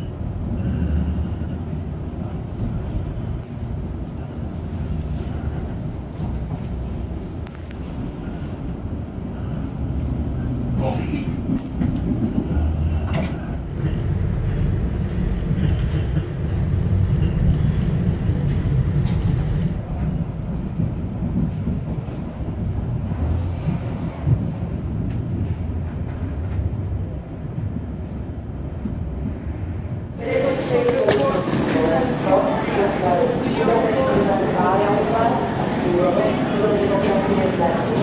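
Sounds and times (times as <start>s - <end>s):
train carriage rumbling: 0.0s - 38.0s.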